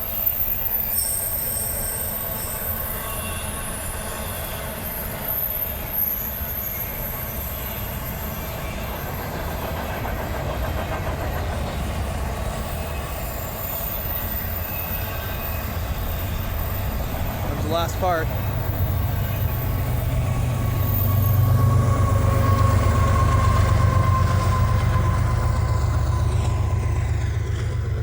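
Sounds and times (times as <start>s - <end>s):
train wheels rumbling on rail: 0.0s - 28.0s
high-pitched wheel squeal: 18.5s - 27.9s.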